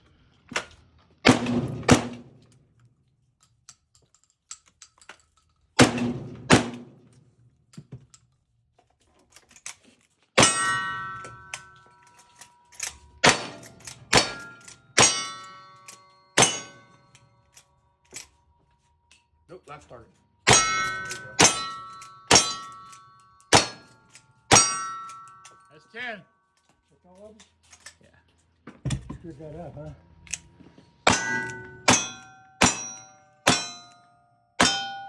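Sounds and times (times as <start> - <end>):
gunshots: 1.2 - 2.3, 5.8 - 6.9, 13.2 - 15.3
steel target ringing: 10.4 - 12.4, 13.1 - 17.4, 20.4 - 26.3, 31.0 - 35.0.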